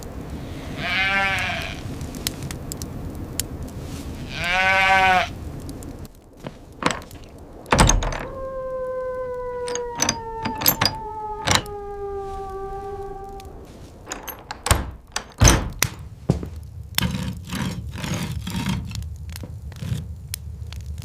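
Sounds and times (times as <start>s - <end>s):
animal bleating: 0.7s - 1.8s, 4.3s - 5.3s
hum falling in pitch: 8.3s - 13.8s
heavy thump: 14.1s - 16.5s.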